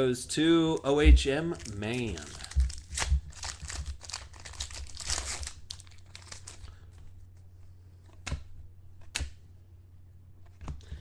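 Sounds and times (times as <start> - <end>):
cards rustling: 0.6 - 6.8
foil wrapper crinkling: 0.7 - 6.8.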